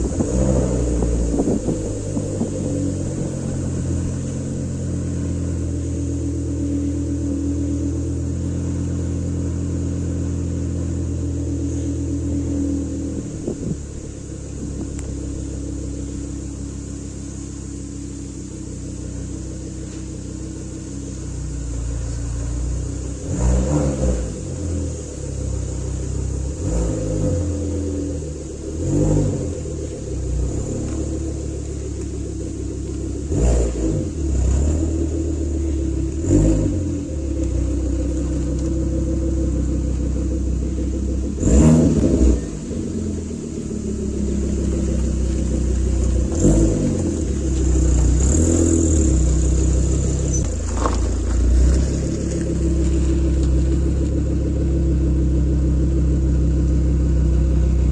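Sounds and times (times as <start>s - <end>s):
car engine idling: 0.0s - 57.9s
engine revving in throttle blips: 0.0s - 57.9s.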